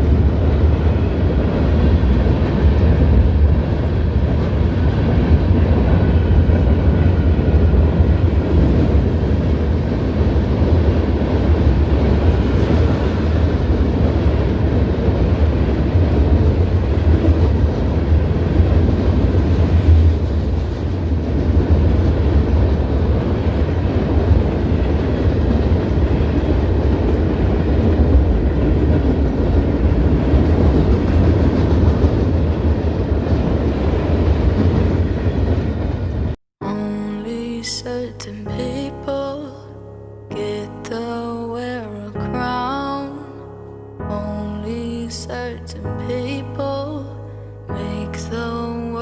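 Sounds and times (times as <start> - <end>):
train in motion rumbling: 0.0 - 39.6.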